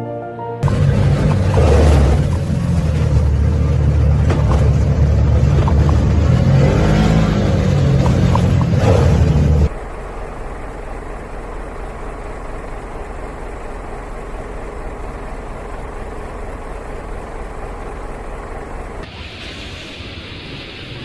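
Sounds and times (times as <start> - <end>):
motor vehicle running: 0.6 - 19.1
hissy noise: 19.1 - 21.0.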